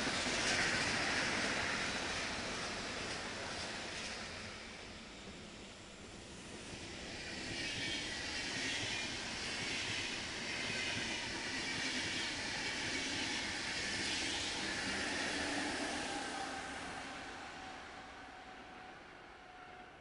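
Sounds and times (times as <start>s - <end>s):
train wheels rushing on rails: 0.0s - 20.0s.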